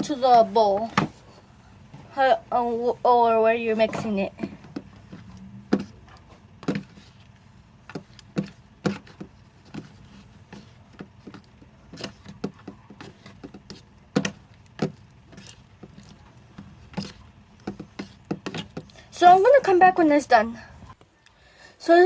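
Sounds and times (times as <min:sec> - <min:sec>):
tool stirring slime in bowl: 0:03.8 - 0:19.6.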